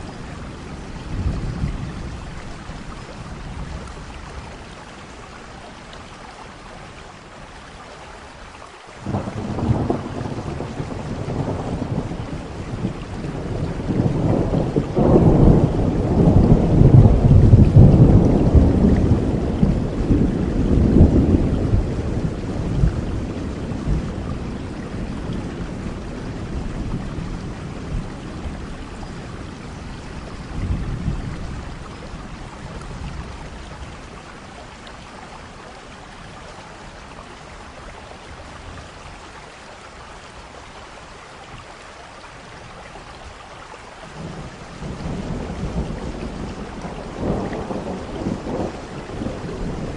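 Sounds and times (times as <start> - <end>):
steady rain: 0.0 - 49.9
rolling thunder: 9.0 - 34.3, 44.1 - 49.9.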